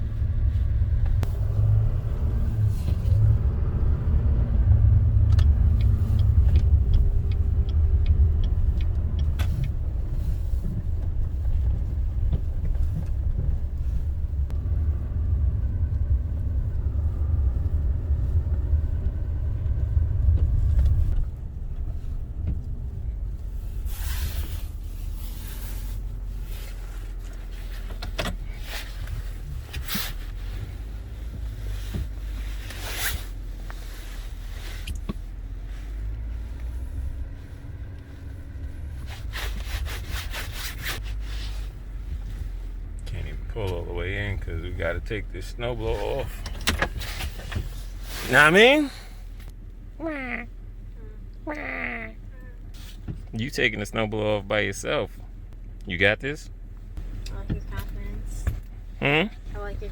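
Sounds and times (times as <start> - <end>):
engine and tyre rumble: 0.0 - 59.9
light ticks: 5.2 - 10.1.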